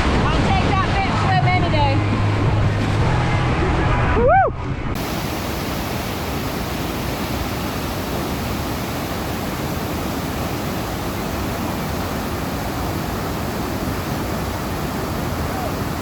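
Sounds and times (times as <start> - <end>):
whitewater rushing: 5.0 - 16.0.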